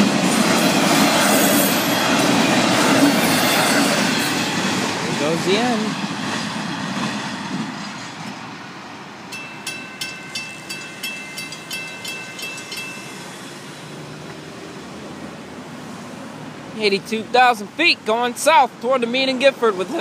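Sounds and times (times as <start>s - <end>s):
freight train cars rolling: 0.0s - 18.6s
crossing bell dinging: 9.3s - 14.4s.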